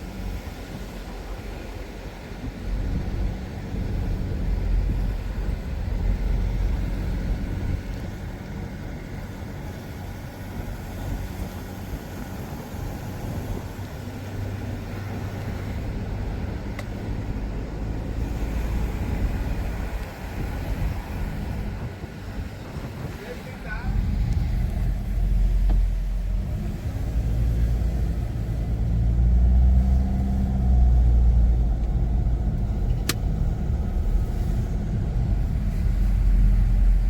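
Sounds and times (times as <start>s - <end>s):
car engine and tyre rumble: 0.0s - 37.0s.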